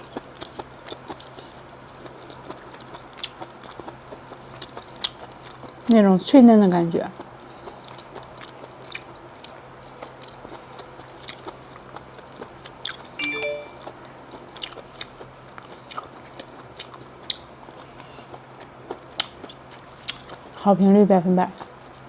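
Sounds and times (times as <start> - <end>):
person chewing shellfish: 0.0 - 5.8, 7.2 - 13.2, 14.0 - 20.6
brief pitched sound: 13.2 - 13.9.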